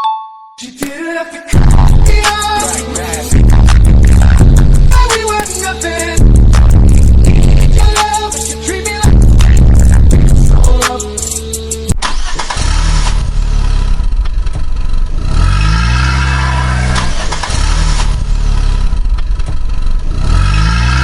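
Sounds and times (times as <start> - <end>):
music: 1.0 - 12.3
vehicle engine revving: 1.6 - 21.0.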